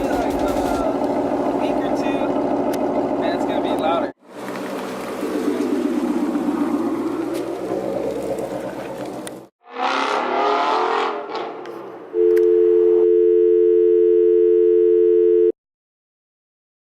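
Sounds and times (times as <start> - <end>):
telephone dial tone: 12.2 - 15.6.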